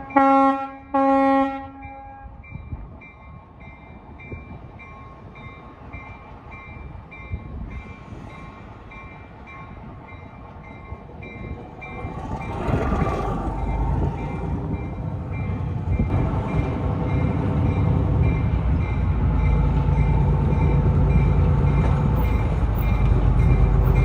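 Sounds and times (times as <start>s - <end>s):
train horn blast: 0.0s - 2.4s
railroad crossing bell dinging: 0.0s - 12.8s, 13.6s - 24.0s
passing train rumble: 0.0s - 24.0s.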